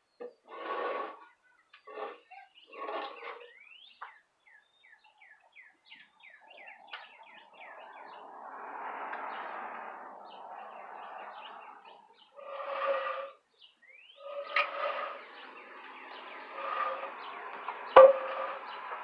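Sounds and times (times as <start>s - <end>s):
songbird singing: 1.2s - 19.0s
broad rushing noise: 7.4s - 12.1s.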